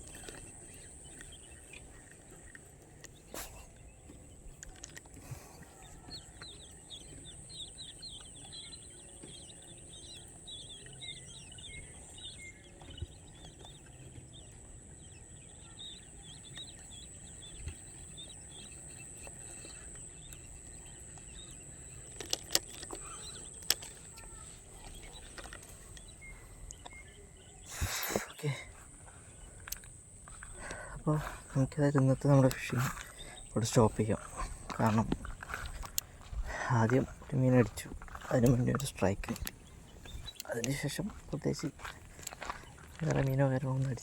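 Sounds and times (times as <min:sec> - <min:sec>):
small birds chirping: 0:00.0 - 0:44.0
sharp clicks: 0:19.8 - 0:24.3.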